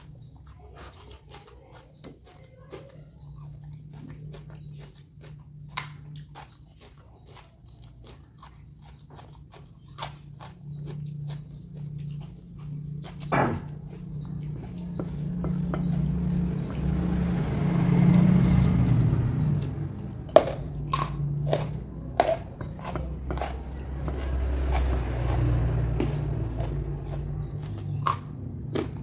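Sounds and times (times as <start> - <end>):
chewing raw vegetables: 0.0 - 29.0
sharp crunches: 4.0 - 16.0.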